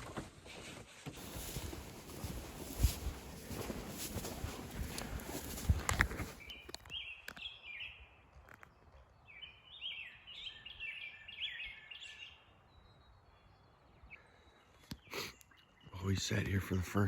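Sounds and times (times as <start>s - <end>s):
songbird whistled song: 6.3s - 8.2s, 9.2s - 16.2s.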